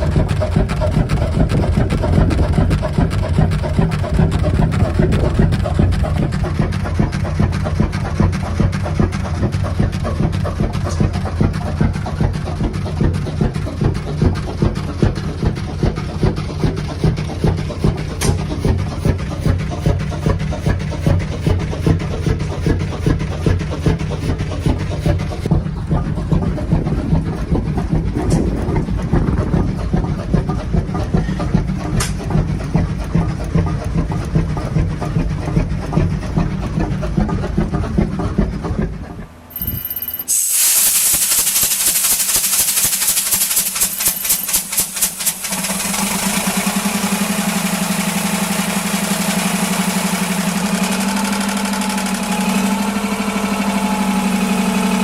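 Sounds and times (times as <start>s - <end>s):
large engine running with heavy beat: 0.0s - 40.3s, 40.9s - 55.0s
machine hissing: 40.3s - 46.2s
fast regular ticking: 41.3s - 45.5s.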